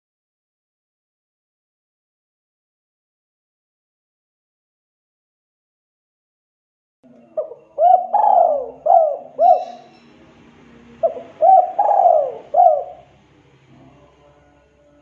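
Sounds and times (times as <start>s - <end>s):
dove cooing: 7.1s - 13.2s.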